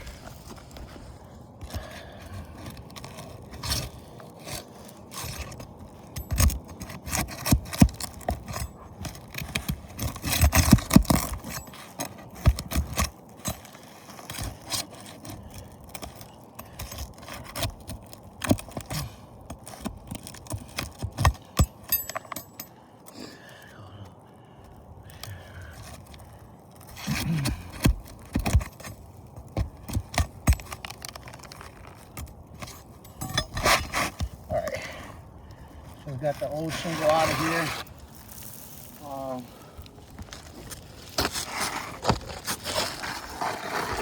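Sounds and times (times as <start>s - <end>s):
metal bar scraping roof shingle: 36.1s - 38.9s, 40.3s - 44.0s.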